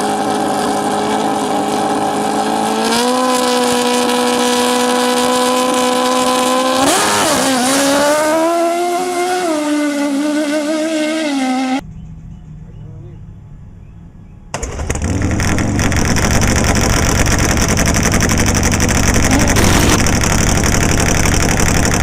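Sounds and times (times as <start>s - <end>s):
motorcycle engine at high revs: 0.0s - 11.8s, 14.6s - 22.0s.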